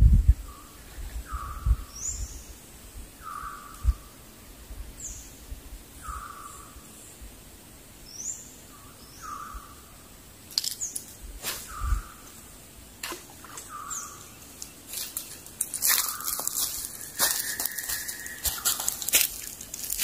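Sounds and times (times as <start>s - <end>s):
bird calling: 3.2s - 4.1s, 6.0s - 6.8s, 8.2s - 9.9s, 10.8s - 12.4s, 13.0s - 15.1s, 15.8s - 19.5s
crackling crunching clicks: 10.5s - 11.2s, 14.5s - 20.0s.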